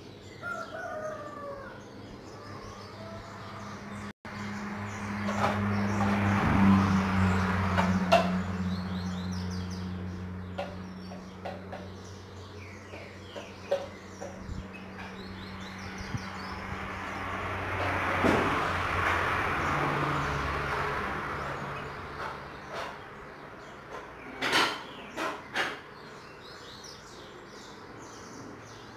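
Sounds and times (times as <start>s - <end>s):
small birds chirping: 0.0s - 17.9s, 19.7s - 28.9s.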